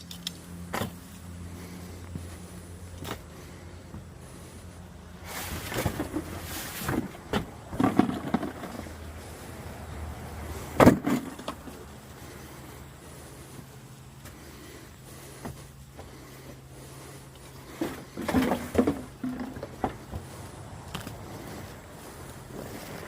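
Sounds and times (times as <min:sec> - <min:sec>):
steady low hum: 0:00.0 - 0:23.0
junk knocking and clattering: 0:05.8 - 0:08.9.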